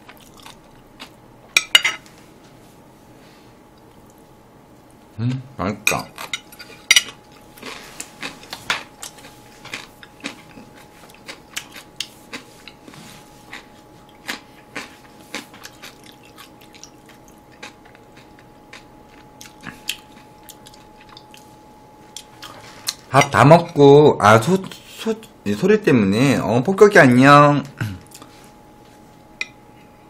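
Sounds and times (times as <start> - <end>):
chewing and crunching food: 0.0 - 1.2, 6.1 - 23.3, 27.8 - 28.5.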